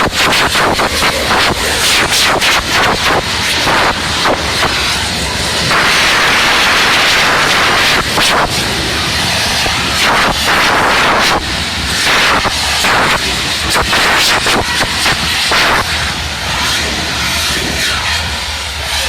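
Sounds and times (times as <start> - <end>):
firework bangs: 0.0 - 16.7
fireworks hissing: 0.0 - 19.0.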